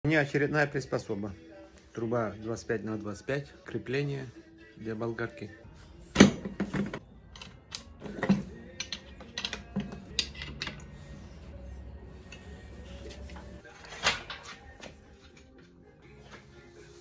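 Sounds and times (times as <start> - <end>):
metal grinder mount clicks and knocks: 6.2 - 10.9.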